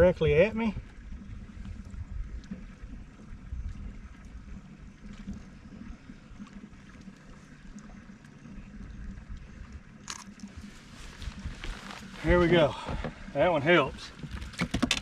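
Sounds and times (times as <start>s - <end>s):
faint steady hum: 0.0s - 15.0s
wind and water rumble: 0.0s - 15.0s.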